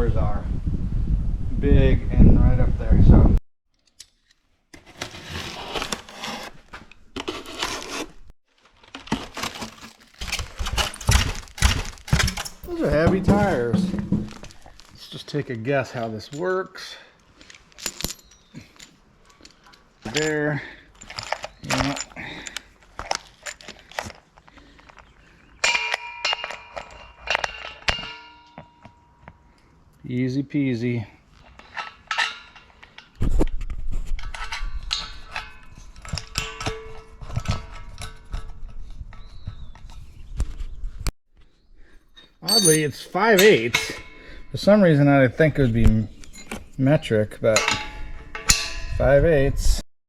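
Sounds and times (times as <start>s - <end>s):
packaging rustling: 8.5s - 12.7s
metal clanking and ringing: 25.6s - 29.1s, 42.2s - 44.4s, 47.6s - 49.0s.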